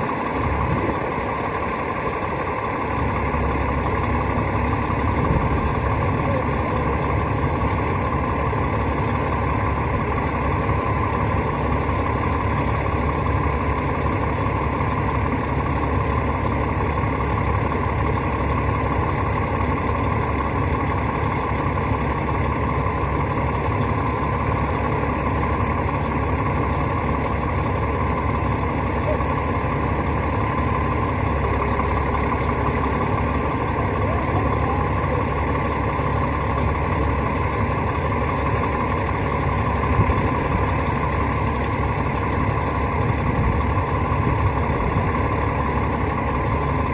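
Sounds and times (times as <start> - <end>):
hvac unit droning: 22.2 - 46.9.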